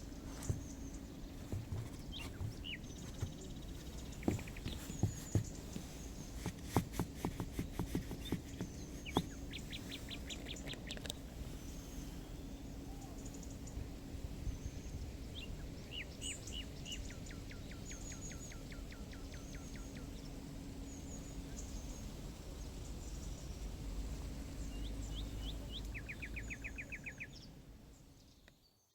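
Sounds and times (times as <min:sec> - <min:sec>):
footsteps crunching on path: 0:00.0 - 0:10.0
songbirds chirping and trilling: 0:00.0 - 0:28.8.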